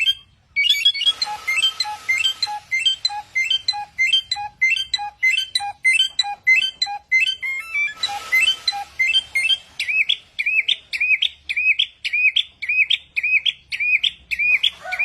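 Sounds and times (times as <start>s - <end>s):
songbird chirping and whistling: 0.0s - 15.0s.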